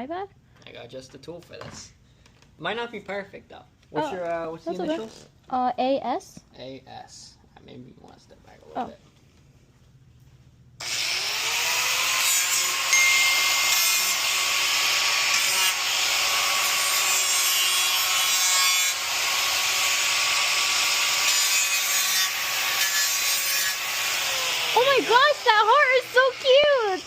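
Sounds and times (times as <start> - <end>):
electric engraving tool whining: 10.8 - 27.0.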